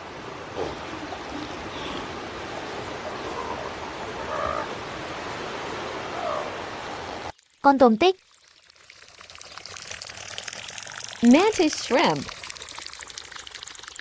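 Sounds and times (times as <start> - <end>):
seals calling: 0.0 - 7.3
surf washing: 0.0 - 7.3.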